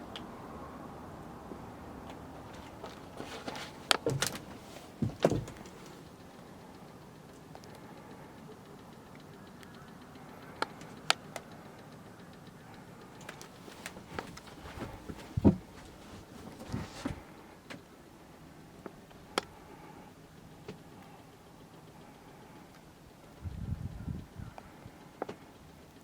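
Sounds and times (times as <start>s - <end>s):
low steady hum: 0.0s - 26.0s
sharp clicks and knocks: 2.5s - 6.2s, 13.1s - 17.9s.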